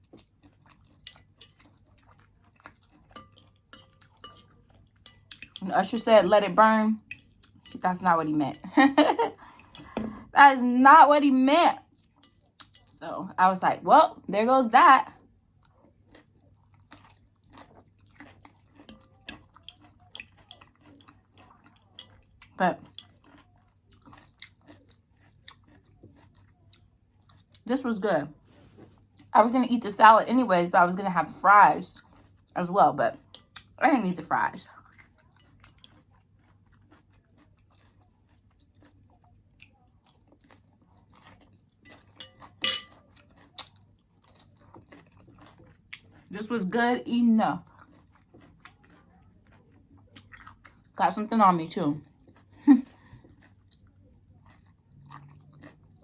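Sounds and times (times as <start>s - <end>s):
person chewing food: 0.0s - 5.6s, 7.0s - 7.8s, 8.6s - 10.3s, 11.8s - 13.0s, 15.0s - 27.7s, 28.4s - 29.3s, 31.9s - 33.8s, 34.6s - 46.5s, 47.6s - 51.0s, 52.0s - 56.0s.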